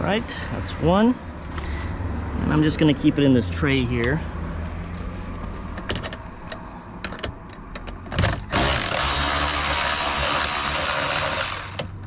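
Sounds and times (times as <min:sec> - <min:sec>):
fast continuous ratcheting: 0:08.4 - 0:11.9.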